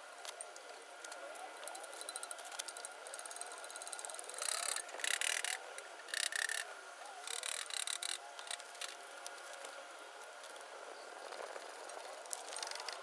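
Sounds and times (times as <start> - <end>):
ratchet wrench clicking: 1.6 - 9.0.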